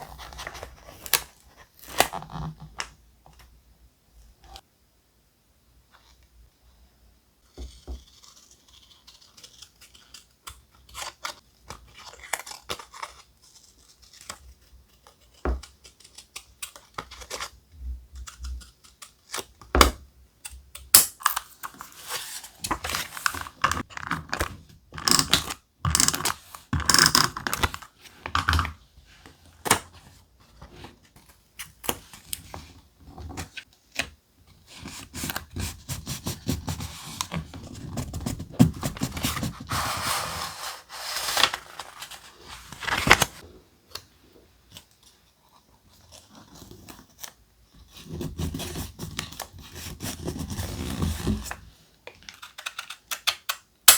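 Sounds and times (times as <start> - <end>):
paper rustling and tapping: 41.3 - 43.4.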